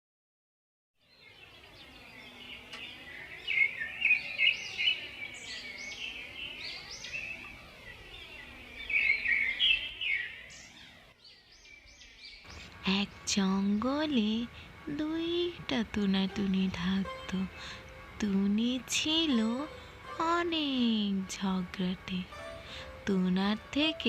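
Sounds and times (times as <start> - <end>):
birds chirping: 1.0 - 24.0
steady hiss: 12.5 - 24.0.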